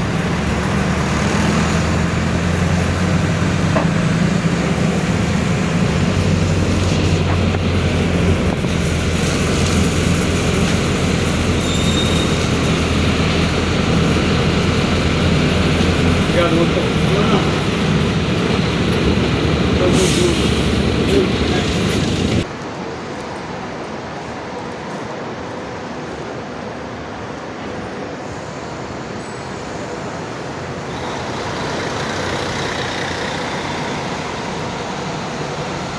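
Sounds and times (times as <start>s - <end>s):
diesel bus engine droning: 0.0s - 22.5s, 29.4s - 35.9s
rattling noise: 0.0s - 22.5s
road noise: 0.0s - 35.9s.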